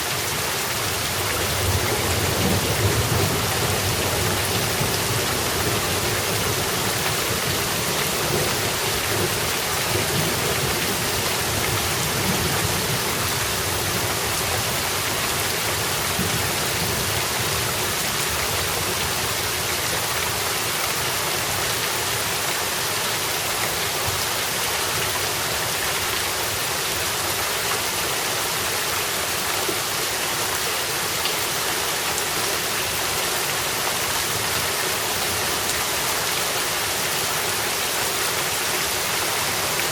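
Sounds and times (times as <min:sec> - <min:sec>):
rain splashing on surfaces: 0:00.0 - 0:39.9.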